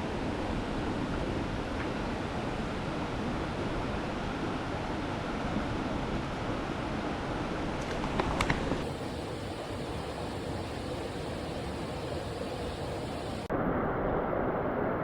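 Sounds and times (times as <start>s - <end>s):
stream water rushing: 8.8s - 13.5s.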